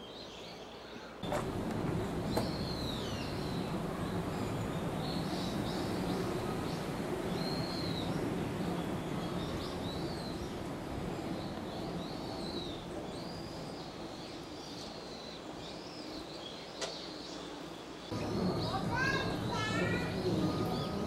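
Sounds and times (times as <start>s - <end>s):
birds chirping: 0.0s - 21.0s
low background rumble: 1.2s - 12.8s.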